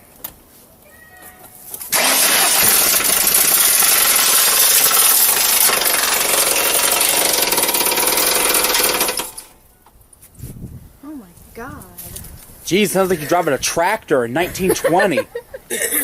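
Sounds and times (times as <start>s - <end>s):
car engine harsh rapid clatter: 1.9s - 9.5s.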